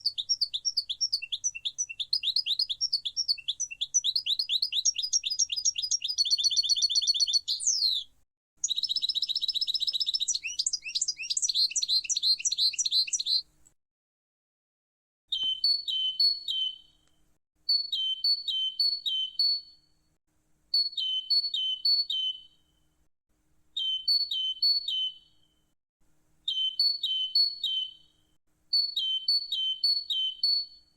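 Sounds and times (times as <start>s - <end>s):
goldfinch twittering song: 0.0s - 8.0s, 8.6s - 13.4s, 15.3s - 16.9s, 23.8s - 25.4s.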